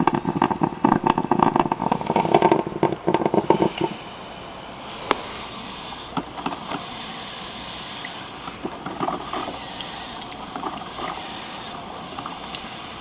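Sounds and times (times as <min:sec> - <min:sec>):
small pops and clicks: 0:00.0 - 0:04.0
coffee maker hissing steam: 0:00.0 - 0:13.0.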